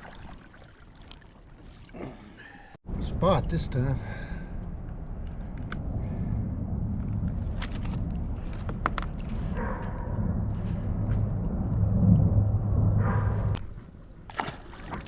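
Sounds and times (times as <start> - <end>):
steady low rumble: 2.9 - 14.3
metal lure blades jingling: 7.2 - 9.4.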